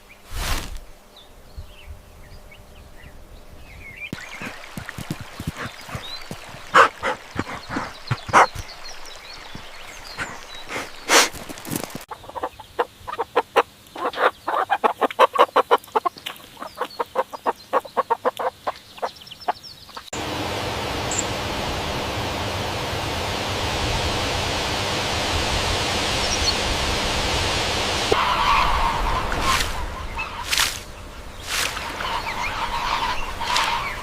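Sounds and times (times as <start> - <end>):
steady hiss: 4.2 - 12.1, 20.2 - 34.0
chickens clucking: 4.2 - 20.2, 31.5 - 34.0.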